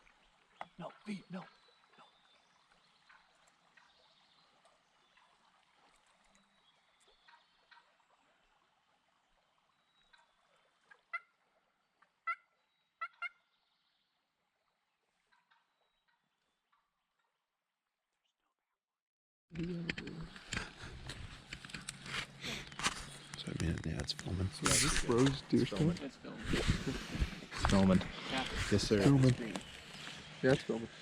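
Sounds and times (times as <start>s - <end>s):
wild turkey clucks: 10.1s - 11.4s, 12.0s - 13.4s, 15.3s - 17.4s.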